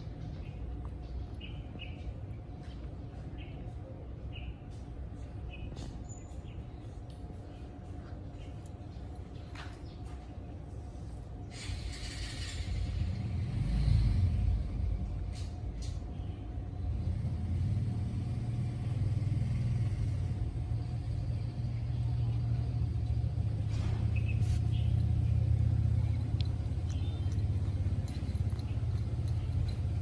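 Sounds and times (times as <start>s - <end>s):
low pulsing rumble: 11.8s - 30.0s.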